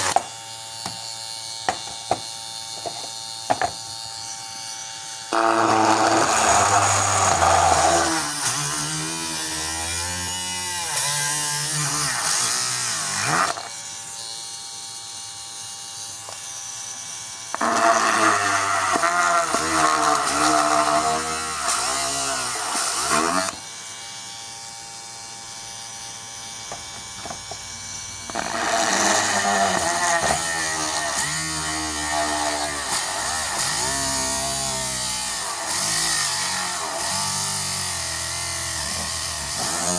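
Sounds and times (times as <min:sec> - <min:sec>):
drill motor running: 0:01.4 - 0:09.8, 0:17.5 - 0:39.9.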